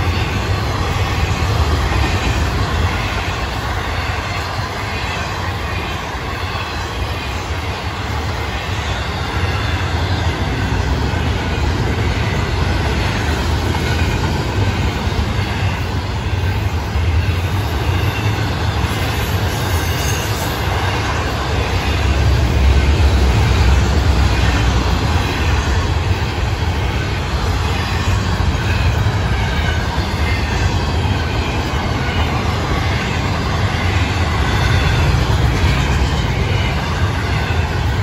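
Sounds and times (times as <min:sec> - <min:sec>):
steel wheels rumbling on rail: 0:00.0 - 0:38.0.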